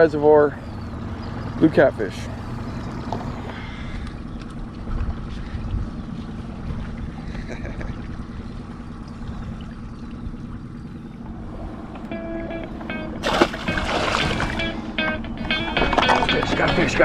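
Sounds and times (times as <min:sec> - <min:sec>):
boat motor humming: 0:00.0 - 0:17.0
water noise: 0:00.0 - 0:17.0.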